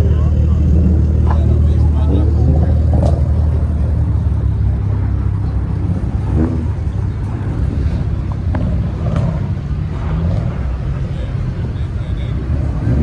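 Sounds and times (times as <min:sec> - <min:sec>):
car engine idling: 0:00.0 - 0:13.0
faint voices: 0:00.0 - 0:13.0.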